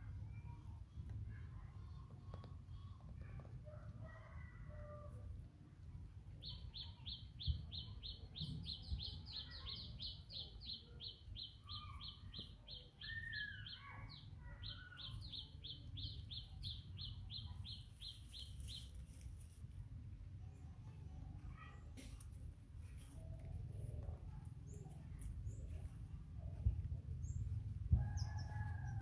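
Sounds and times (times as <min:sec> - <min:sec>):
steady low rumble: 0:22.4 - 0:29.0.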